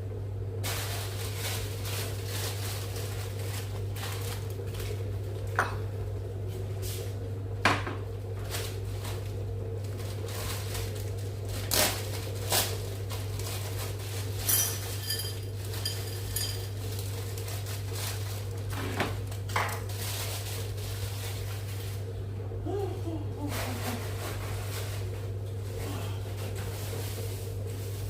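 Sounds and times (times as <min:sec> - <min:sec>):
steady low hum: 0:00.0 - 0:28.0
pots and utensils knocking: 0:14.4 - 0:16.8
metallic clinks: 0:14.5 - 0:16.6.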